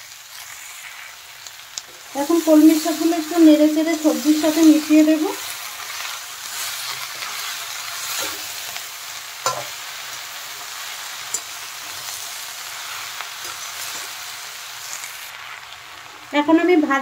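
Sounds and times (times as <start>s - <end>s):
vegetables sizzling in oil: 0.0s - 17.0s
metal tongs clicking on pan: 9.4s - 9.7s, 11.3s - 11.5s.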